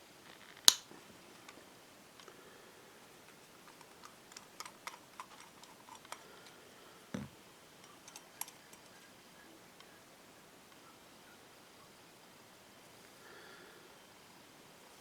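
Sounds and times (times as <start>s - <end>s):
small parts and tools clicking: 3.3s - 6.6s, 7.8s - 9.1s.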